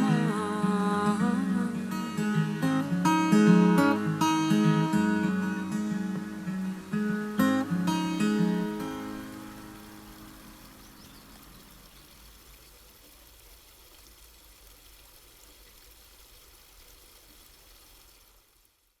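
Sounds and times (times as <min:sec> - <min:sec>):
acoustic guitar chord ringing: 0:00.0 - 0:10.9
faint hiss: 0:00.0 - 0:19.0.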